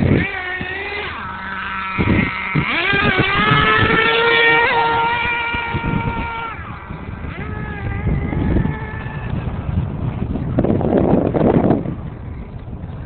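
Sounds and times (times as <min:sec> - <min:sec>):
toy truck motor whine: 0:00.0 - 0:09.5.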